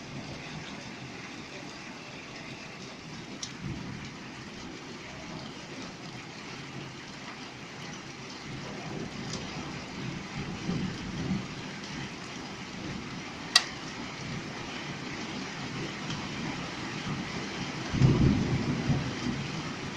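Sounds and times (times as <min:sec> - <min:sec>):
hail and rain falling: 0:00.0 - 0:19.9
thunder rumbling: 0:02.4 - 0:06.6, 0:08.5 - 0:19.9.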